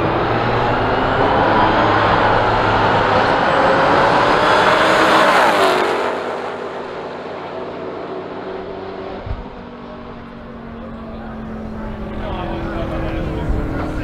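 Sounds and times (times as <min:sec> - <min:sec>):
car engine passing at full throttle: 0:00.0 - 0:14.0
low thump: 0:09.2 - 0:09.7.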